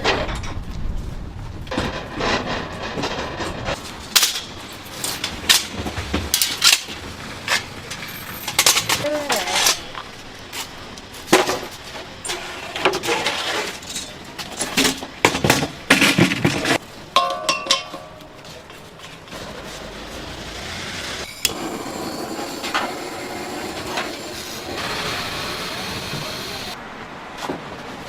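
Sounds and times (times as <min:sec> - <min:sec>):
cookware and utensils clinking: 0:17.2 - 0:18.3.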